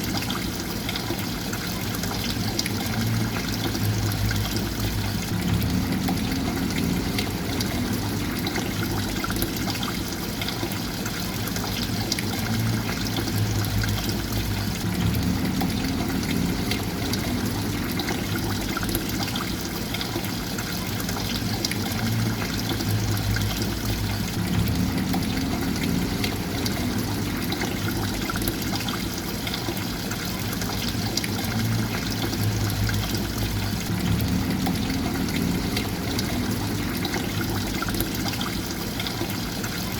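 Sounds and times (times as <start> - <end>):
water trickling and splashing: 0.0 - 39.9
low hum: 3.1 - 9.6, 12.6 - 19.1, 22.3 - 28.6, 31.5 - 38.1.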